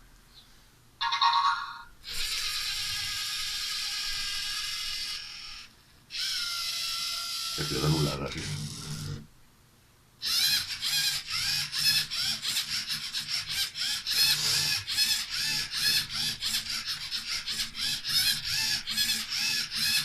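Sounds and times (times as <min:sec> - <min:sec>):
motors whirring in short strokes: 0:10.2 - 0:20.0.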